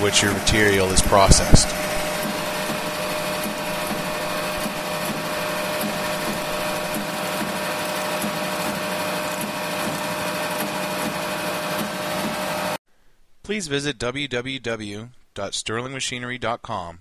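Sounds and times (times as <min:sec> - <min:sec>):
belt grinder running: 0:00.0 - 0:12.8.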